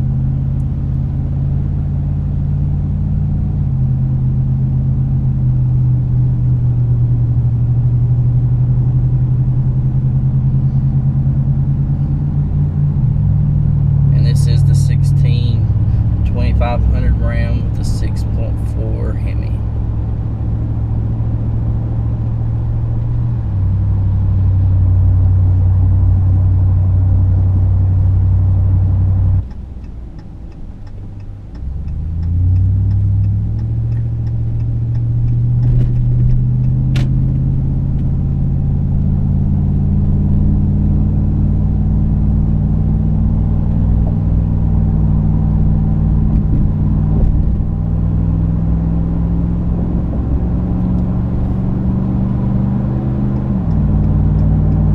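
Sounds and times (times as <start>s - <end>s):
engine accelerating: 0.0s - 54.9s
truck exhaust drone: 0.0s - 54.9s
faint regular ticking: 29.4s - 36.8s.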